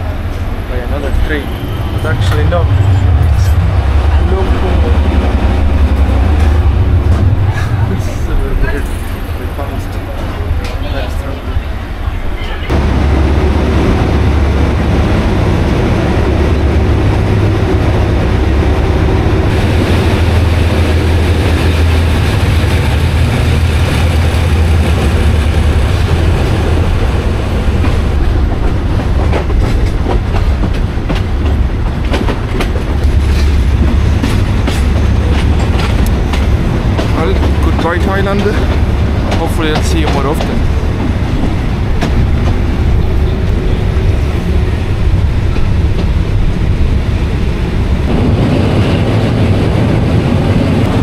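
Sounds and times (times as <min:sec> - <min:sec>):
train rumble: 0:00.0 - 0:51.0
wheels clicking over rail joints: 0:27.7 - 0:43.0.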